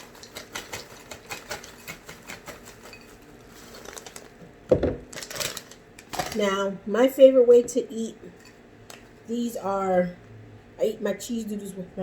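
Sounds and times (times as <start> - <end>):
snack mix pouring and clattering: 0.0 - 4.4, 5.0 - 6.4.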